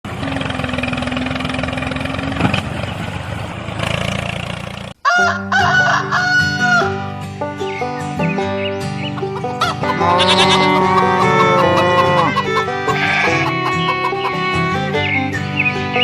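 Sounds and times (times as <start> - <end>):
rooster crowing: 5.0 - 7.0, 9.6 - 14.5
music with steady notes: 5.5 - 16.0.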